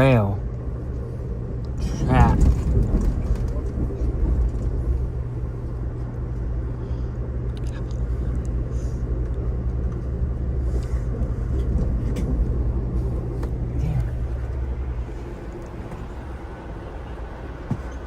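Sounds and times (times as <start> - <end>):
train rumble and hum: 0.0 - 18.0.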